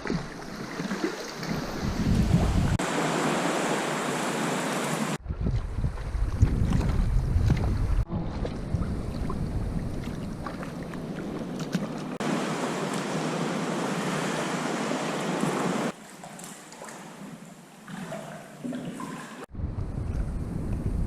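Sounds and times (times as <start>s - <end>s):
waves lapping: 0.0s - 5.2s, 8.1s - 19.5s
wind: 0.0s - 21.0s.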